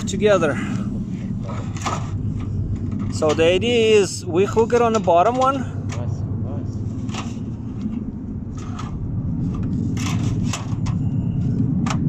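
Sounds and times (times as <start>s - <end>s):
steady low rumble: 0.0s - 12.0s
sheet metal scraping: 6.9s - 12.0s.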